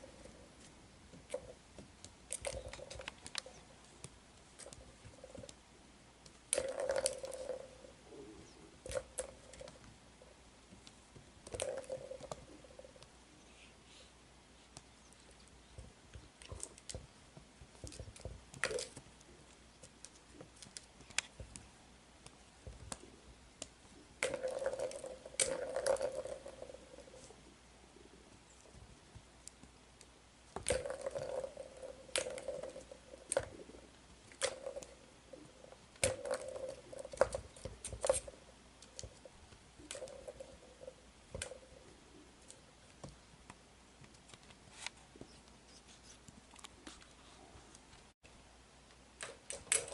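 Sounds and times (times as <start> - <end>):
toy rattling and scrabbling: 0.0 - 5.6, 6.3 - 10.0, 10.7 - 13.1, 15.2 - 21.7, 23.9 - 27.5, 30.5 - 43.2, 49.2 - 49.9.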